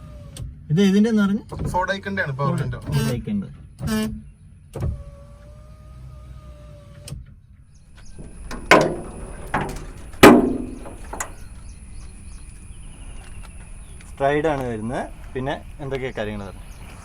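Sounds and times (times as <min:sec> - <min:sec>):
loud thumps: 0:07.9 - 0:12.2.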